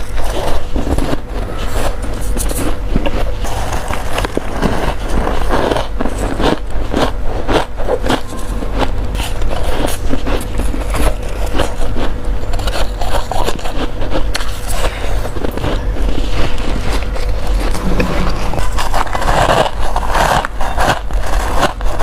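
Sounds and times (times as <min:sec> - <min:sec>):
frost being chewed: 0:00.0 - 0:22.0
steady low hum: 0:00.0 - 0:22.0.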